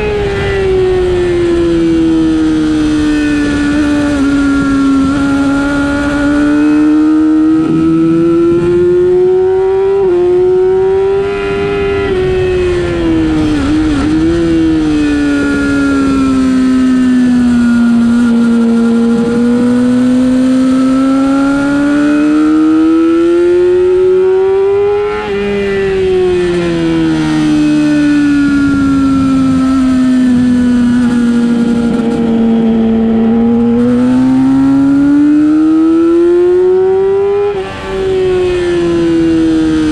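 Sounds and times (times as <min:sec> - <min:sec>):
race motorcycle engine: 0:00.0 - 0:39.9.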